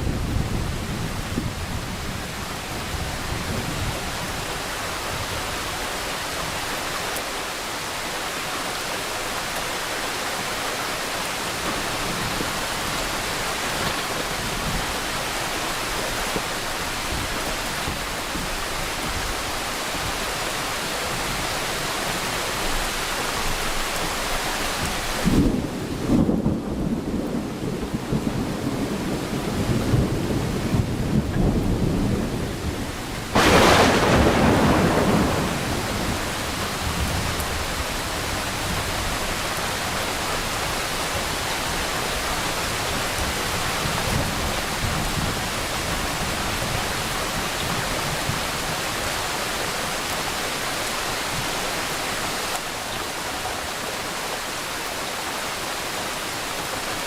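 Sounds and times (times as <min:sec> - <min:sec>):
low rumble of thunder: 0:00.0 - 0:04.5, 0:25.2 - 0:39.9
steady rain falling: 0:00.0 - 0:57.0.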